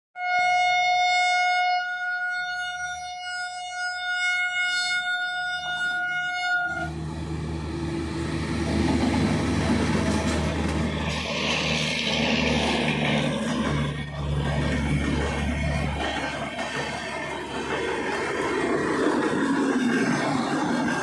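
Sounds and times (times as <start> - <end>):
locomotive horn long blast: 0.2 - 7.8
train rumbling past: 5.4 - 21.0.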